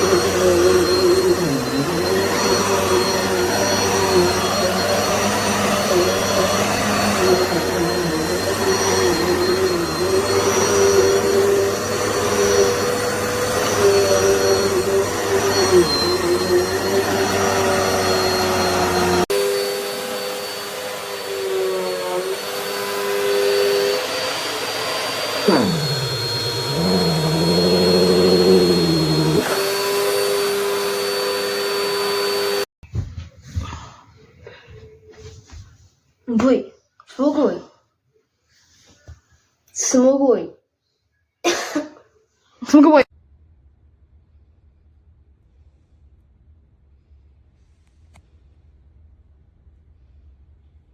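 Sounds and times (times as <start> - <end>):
vacuum cleaner motor whine: 0.0 - 32.7.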